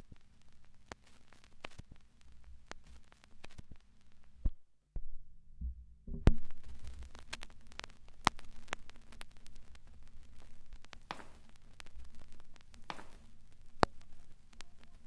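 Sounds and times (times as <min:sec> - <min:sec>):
clicks and crackling static: 0:00.0 - 0:15.0
dull low thuds: 0:04.5 - 0:07.0.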